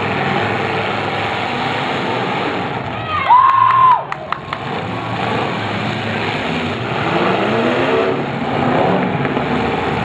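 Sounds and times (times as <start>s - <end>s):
car engines running: 0.0s - 10.0s
engine revving up and down: 4.4s - 10.0s.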